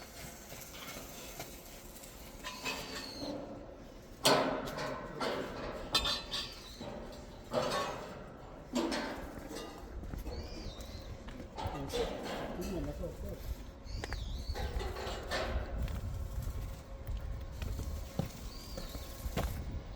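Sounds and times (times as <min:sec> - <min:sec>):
metal clanks and knocks: 0:04.2 - 0:10.6, 0:11.4 - 0:13.1, 0:14.5 - 0:16.0.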